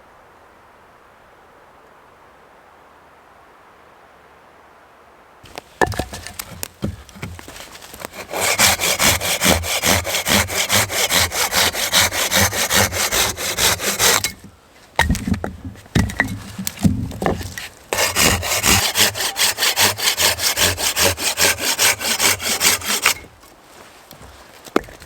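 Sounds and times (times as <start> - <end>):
hand saw cutting wood: 5.5 - 23.3.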